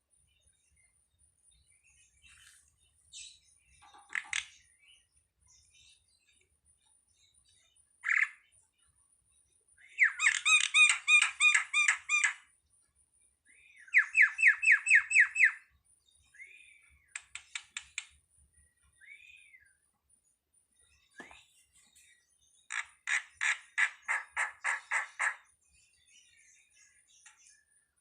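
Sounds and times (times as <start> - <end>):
starling calling: 10.0 - 12.5, 13.9 - 15.6, 22.7 - 25.4.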